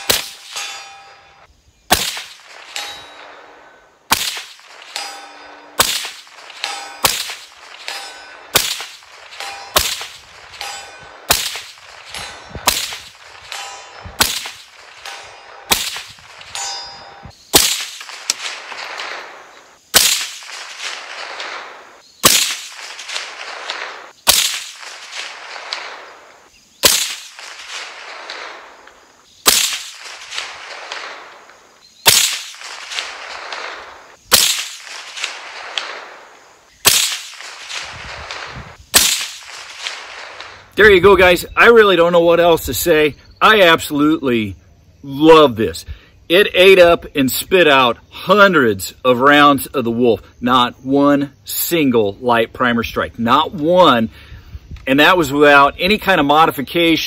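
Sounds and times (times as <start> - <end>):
gunshot echo: 0.0 - 1.2, 1.9 - 40.7
pistol gunshots: 0.0 - 1.2, 1.9 - 40.7
metallic ring: 0.0 - 1.5, 2.7 - 3.3, 4.9 - 5.8, 6.6 - 8.5, 9.4 - 10.0, 10.6 - 11.3, 12.0 - 17.4.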